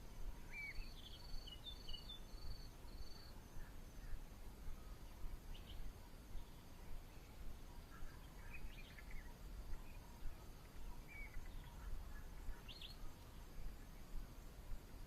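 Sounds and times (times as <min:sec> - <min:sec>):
low steady rumble: 0:00.0 - 0:15.0
birds chirping and whistling: 0:07.9 - 0:11.9.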